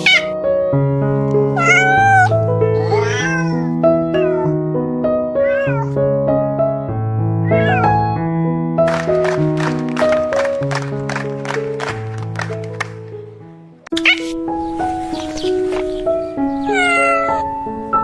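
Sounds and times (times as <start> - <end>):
cat meowing: 0.0 - 0.4, 1.6 - 6.0, 7.4 - 8.0, 13.9 - 14.4, 16.6 - 17.6.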